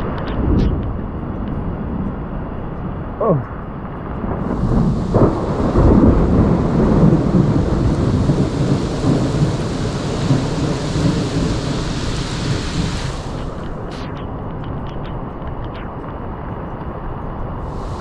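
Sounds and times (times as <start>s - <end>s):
thunder rumbling: 0.0s - 14.8s, 17.4s - 18.0s
heavy rain hiss: 3.2s - 15.5s, 16.3s - 18.0s.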